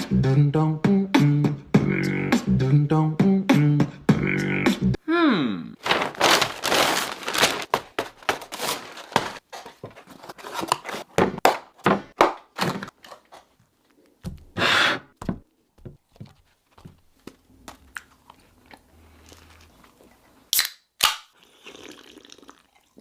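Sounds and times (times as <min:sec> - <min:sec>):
paper packaging rustling: 0:05.8 - 0:13.9.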